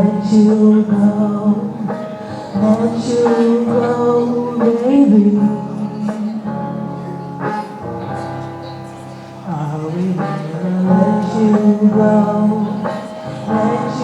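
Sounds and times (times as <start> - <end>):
instrumental backing: 0.0 - 14.0
person singing a love song: 0.0 - 14.0.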